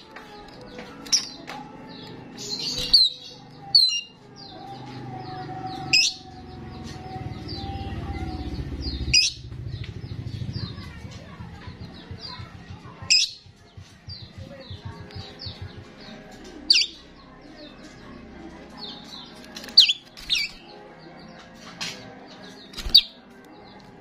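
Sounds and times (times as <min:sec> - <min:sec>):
starling chirping: 0:02.4 - 0:17.2, 0:18.8 - 0:20.8, 0:22.6 - 0:23.2
loud sharp bird calls: 0:05.2 - 0:13.4.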